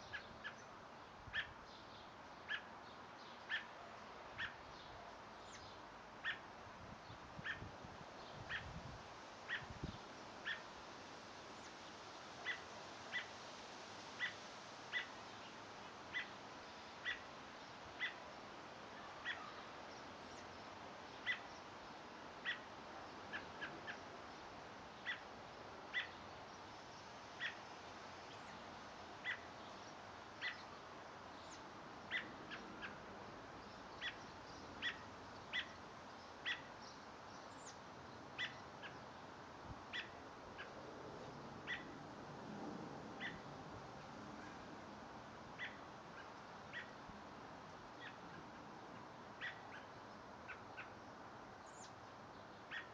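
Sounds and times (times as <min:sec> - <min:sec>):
songbird chirping: 0:00.0 - 0:06.5, 0:25.9 - 0:42.0, 0:45.6 - 0:47.2, 0:47.9 - 0:52.9
faint steady hiss: 0:00.0 - 0:52.9.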